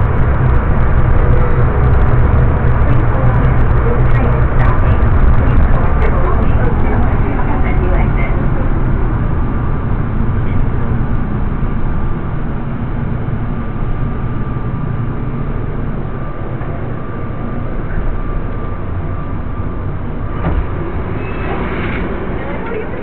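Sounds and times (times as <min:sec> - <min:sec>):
faint steady whine: 0:00.0 - 0:23.0
train rumble: 0:00.0 - 0:23.0
train doors knocking open: 0:20.2 - 0:22.8.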